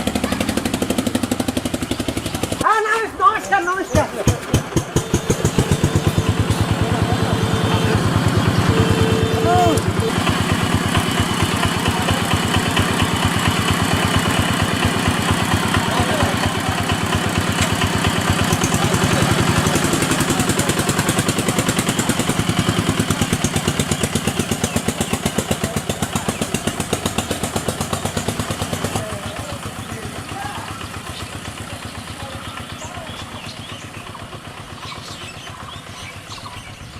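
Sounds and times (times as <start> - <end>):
small engine running: 0.0 - 36.9.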